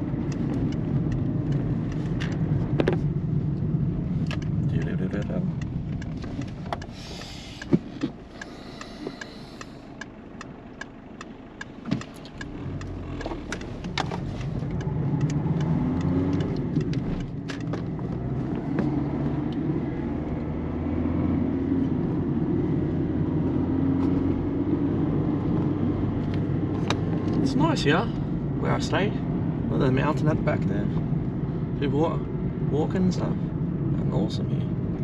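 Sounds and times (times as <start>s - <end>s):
car engine and tyre rumble: 0.0s - 35.0s
sharp clicks: 4.2s - 17.7s.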